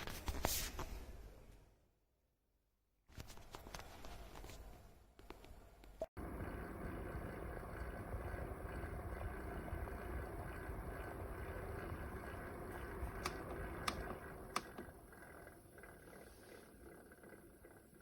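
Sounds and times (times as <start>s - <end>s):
small fan whirring: 6.2s - 18.0s.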